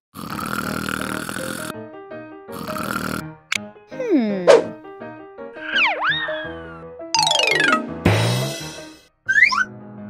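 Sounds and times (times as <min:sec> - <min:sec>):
cartoon snoring: 0:00.1 - 0:01.7, 0:02.5 - 0:03.4
light background tune: 0:03.4 - 0:10.0.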